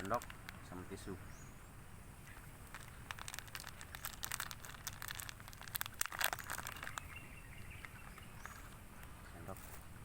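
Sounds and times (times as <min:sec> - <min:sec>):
plastic packaging crinkling: 0:00.0 - 0:00.7, 0:02.2 - 0:07.4.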